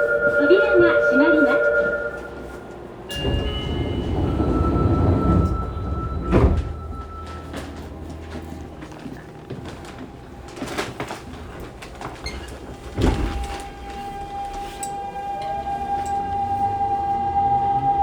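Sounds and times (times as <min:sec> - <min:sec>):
train doors closing with a knock: 0:03.1 - 0:07.9, 0:12.3 - 0:16.3.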